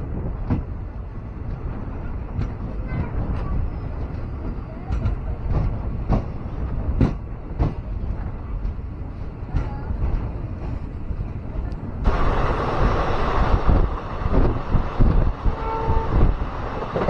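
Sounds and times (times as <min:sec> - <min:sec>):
train rumbling on track: 0:00.0 - 0:17.0
train wheels knocking: 0:02.3 - 0:08.8
loud rushing noise: 0:12.0 - 0:17.0.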